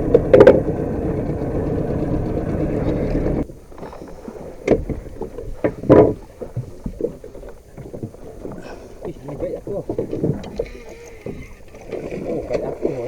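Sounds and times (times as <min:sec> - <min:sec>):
boat motor running: 0:00.0 - 0:03.4
knocks and bumps on boat: 0:00.0 - 0:03.4, 0:04.6 - 0:13.0
water against boat: 0:00.0 - 0:13.0.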